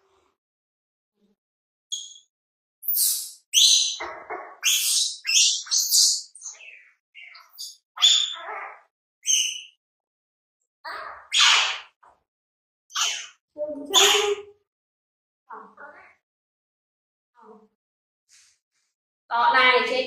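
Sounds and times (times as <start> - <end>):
monkey squeaking and shrieking: 1.9 - 2.2, 2.8 - 9.8, 10.9 - 12.0, 12.9 - 14.5.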